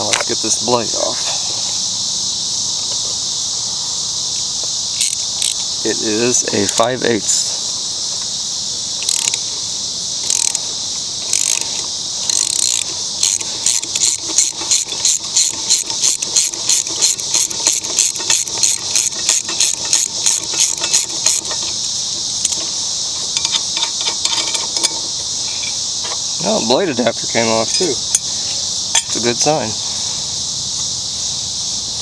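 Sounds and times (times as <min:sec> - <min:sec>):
crickets chirring: 0:00.0 - 0:32.0
ratchet wrench clicking: 0:05.0 - 0:06.9, 0:09.0 - 0:09.4, 0:10.2 - 0:26.3, 0:27.7 - 0:29.2.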